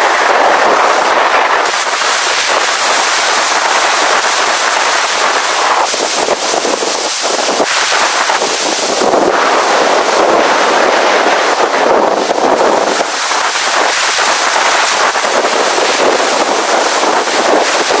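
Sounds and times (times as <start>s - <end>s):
strong blizzard wind: 0.0s - 18.0s
wind buffeting microphone: 0.0s - 18.0s.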